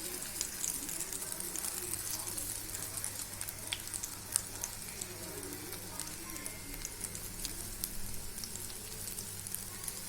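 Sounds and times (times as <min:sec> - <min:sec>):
oil crackles and pops: 0:00.0 - 0:10.0
vegetable slices sizzling in oil: 0:00.0 - 0:10.0.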